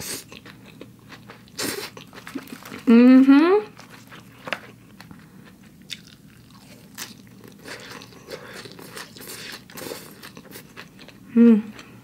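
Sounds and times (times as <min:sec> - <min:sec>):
chewing with crisp crunches: 0:00.0 - 0:02.9, 0:03.8 - 0:12.0.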